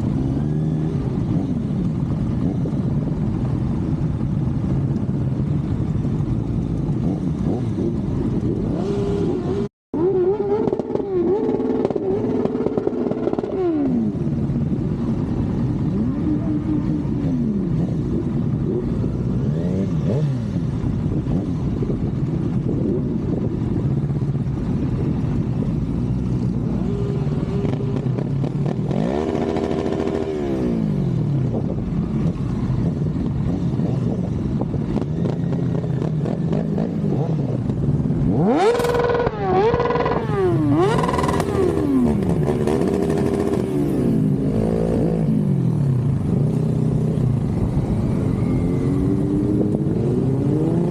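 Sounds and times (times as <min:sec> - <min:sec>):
motorcycle accelerating through gears: 0:00.0 - 0:50.9
motorcycle engines revving: 0:00.0 - 0:50.9.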